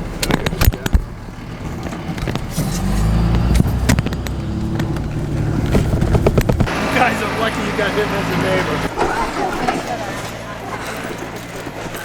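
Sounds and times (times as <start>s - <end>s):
vehicle engine drone: 0.0s - 12.0s
sharp knocks and clicks: 1.7s - 6.8s.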